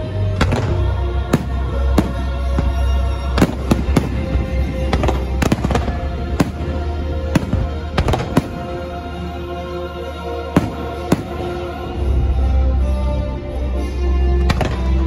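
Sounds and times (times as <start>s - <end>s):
music soundtrack: 0.0s - 15.0s
fireworks bangs: 0.4s - 9.0s, 10.5s - 12.1s.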